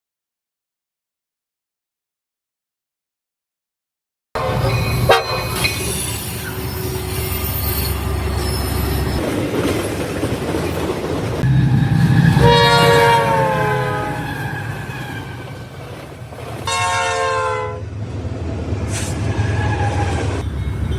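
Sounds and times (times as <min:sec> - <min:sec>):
locomotive air horn: 0:04.4 - 0:05.6, 0:11.4 - 0:15.6, 0:16.6 - 0:17.9
train rumbling by: 0:04.4 - 0:20.9
sharp bang: 0:11.4 - 0:14.4.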